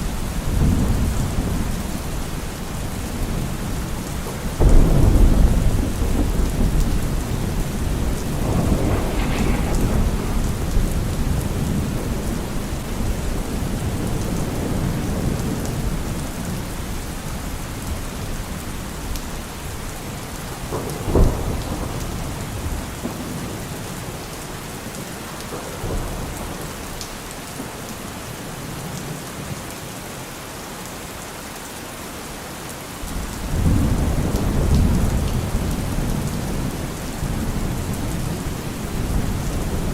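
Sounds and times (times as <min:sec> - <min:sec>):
steady rain: 0:00.0 - 0:39.9
thunder rumbling: 0:00.1 - 0:16.5
sharp thunder crack: 0:04.6 - 0:13.1.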